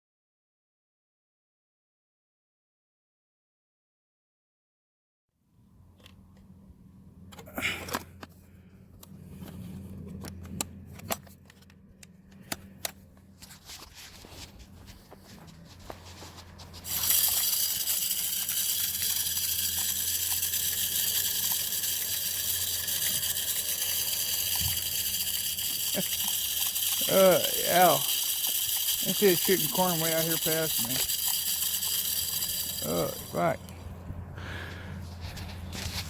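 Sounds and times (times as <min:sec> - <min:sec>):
feeder spinner flinging corn: 0:13.4 - 0:36.0.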